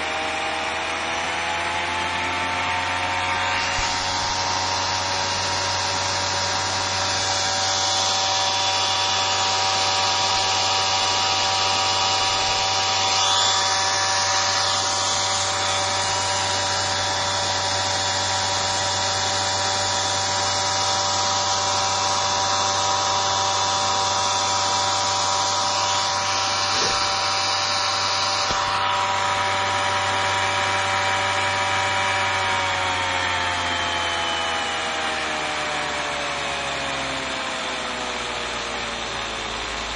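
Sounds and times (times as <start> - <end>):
cooling fan rushing: 0.0 - 39.9
electric motor whine: 0.0 - 39.9.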